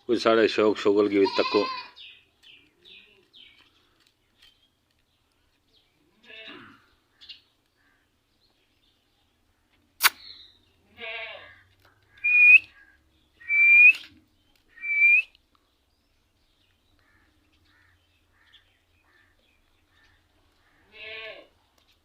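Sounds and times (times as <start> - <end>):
sharp click: 10.0 - 10.2
raspy bird call: 11.4 - 14.0, 14.7 - 15.3
bird calling: 11.5 - 15.3.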